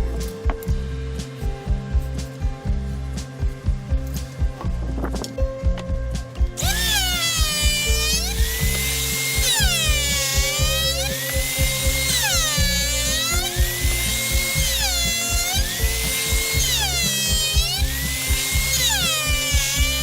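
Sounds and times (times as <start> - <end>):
background music with beat: 0.0 - 20.0
power tool whining: 6.5 - 20.0.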